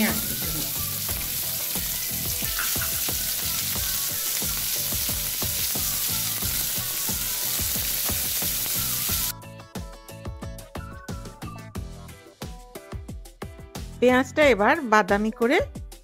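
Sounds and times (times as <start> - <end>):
onion sizzling in oil: 0.0 - 9.3.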